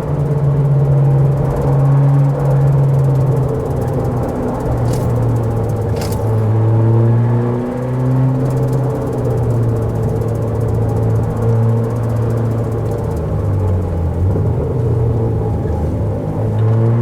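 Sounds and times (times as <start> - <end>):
car engine and road rumble: 0.0 - 17.0
short knocks: 4.8 - 6.6.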